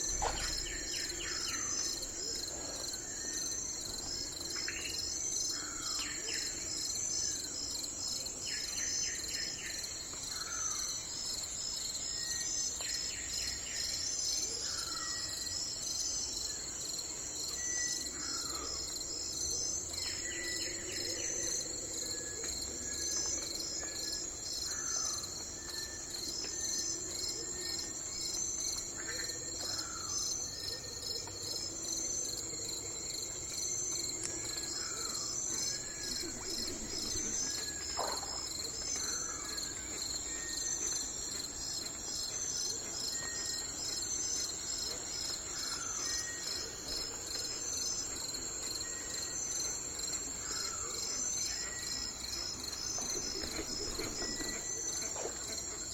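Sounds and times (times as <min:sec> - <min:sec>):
insect chorus with pulsing trill: 0:00.0 - 0:55.9.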